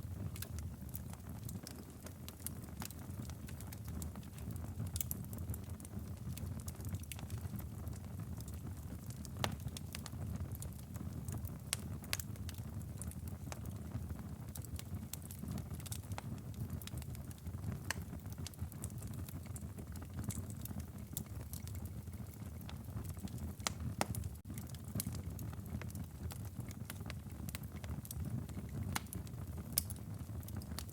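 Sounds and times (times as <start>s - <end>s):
wood fire crackling and popping: 0.0s - 30.9s.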